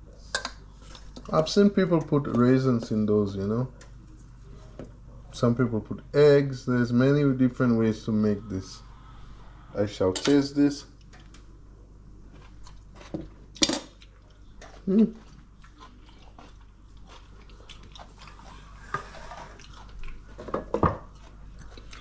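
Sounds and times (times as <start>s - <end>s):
chewing crisp coleslaw: 12.3s - 13.1s, 13.9s - 20.4s, 21.0s - 22.0s.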